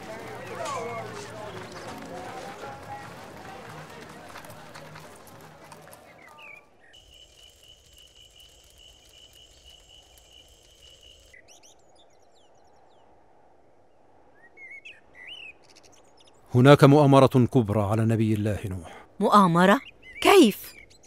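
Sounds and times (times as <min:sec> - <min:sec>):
birds chirping: 0:00.0 - 0:13.1, 0:14.4 - 0:21.0
crickets trilling: 0:07.0 - 0:11.3.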